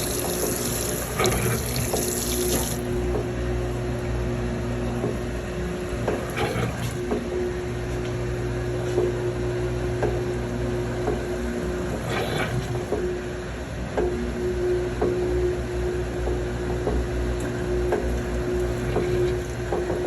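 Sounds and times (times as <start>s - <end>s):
water pumped to drain: 0.0s - 3.3s, 18.0s - 20.0s
washing machine motor humming: 0.0s - 14.6s, 15.5s - 20.0s.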